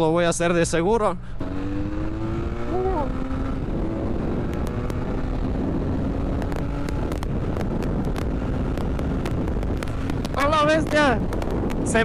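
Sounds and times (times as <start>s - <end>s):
motorcycle engine running: 1.4s - 12.0s
wind noise on microphone: 1.4s - 12.0s
sharp clicks: 3.4s - 11.9s.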